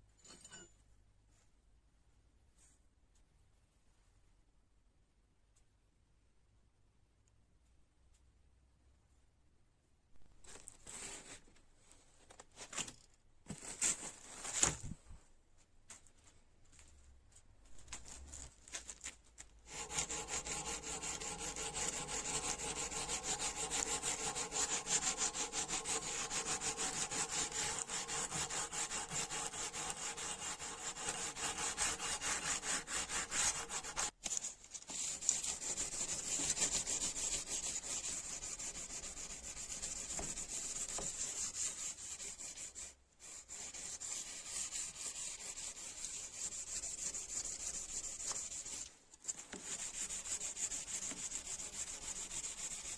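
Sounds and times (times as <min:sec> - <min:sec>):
wrench scrubbed with abrasive: 0:19.7 - 0:34.1.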